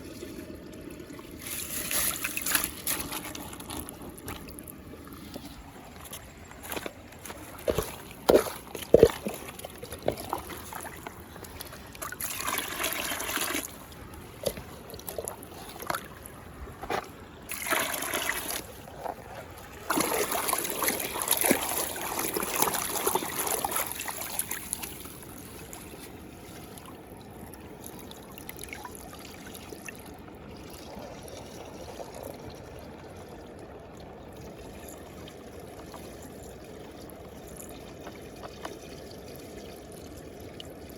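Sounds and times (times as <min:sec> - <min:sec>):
muddy water pouring and splashing: 0:00.0 - 0:40.9
water trickling: 0:00.0 - 0:40.9
sharp water splashes: 0:01.3 - 0:04.6, 0:17.5 - 0:18.8, 0:19.7 - 0:26.0.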